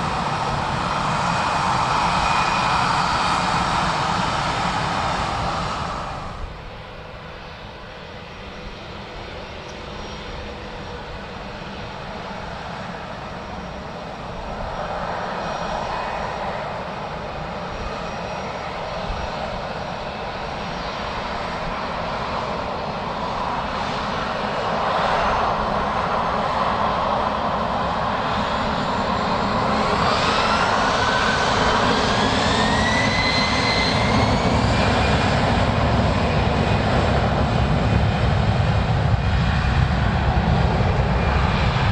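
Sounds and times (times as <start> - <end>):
jet engines running: 0.0 - 41.9.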